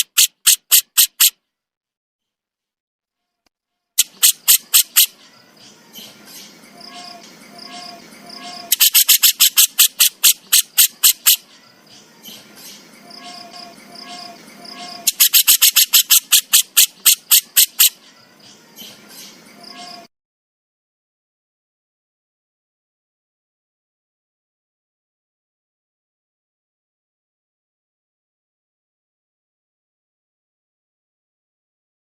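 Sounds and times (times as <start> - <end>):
bird harsh rasping call: 0.0 - 1.3, 4.0 - 20.1
quiet repeated bird notes: 3.2 - 20.1.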